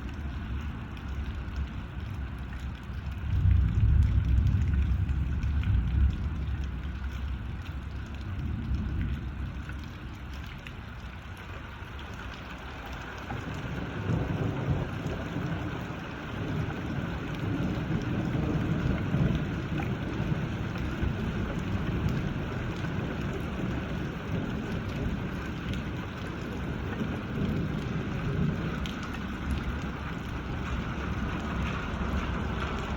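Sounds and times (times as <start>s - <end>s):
steady rain falling: 0.0s - 32.9s
low rumble: 3.0s - 10.0s.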